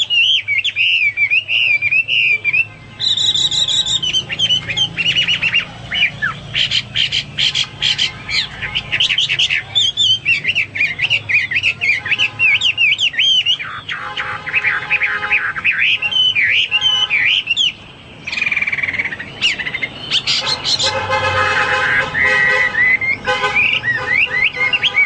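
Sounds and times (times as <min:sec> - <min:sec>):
harsh steady bird note: 0:00.0 - 0:25.0
laughingthrush singing whistled song: 0:00.0 - 0:25.0.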